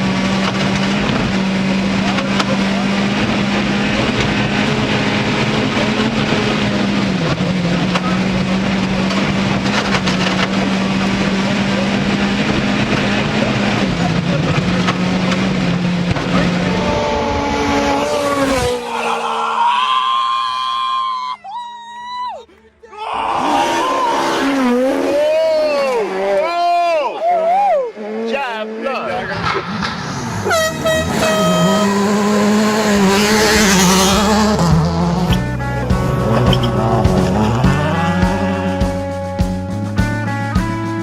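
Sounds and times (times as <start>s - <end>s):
engine droning: 0.0s - 20.3s, 23.0s - 41.0s
loud rushing noise: 15.7s - 20.3s, 28.9s - 31.2s
higher tones: 16.4s - 21.3s, 29.0s - 40.9s.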